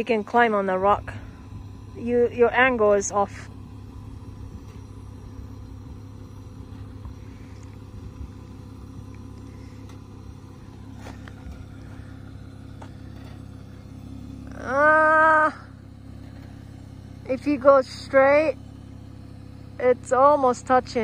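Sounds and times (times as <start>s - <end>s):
engine running low: 0.0s - 21.0s
person calling out: 14.5s - 15.7s.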